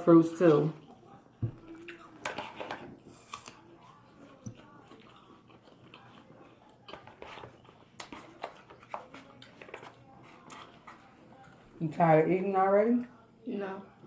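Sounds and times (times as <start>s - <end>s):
person chewing fruit: 0.5s - 11.7s.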